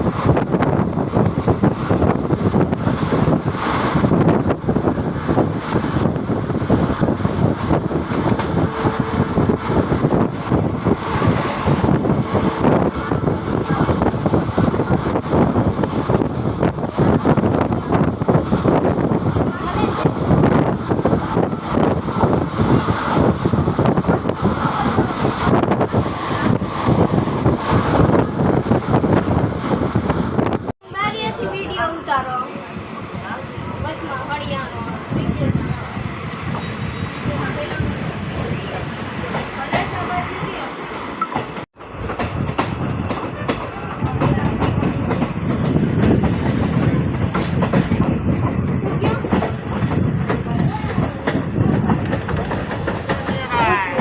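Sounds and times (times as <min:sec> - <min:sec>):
train rumbling and rattling: 0:00.0 - 0:54.0
wind buffeting microphone: 0:00.0 - 0:54.0
train wheels clattering over rail joints: 0:41.2 - 0:54.0.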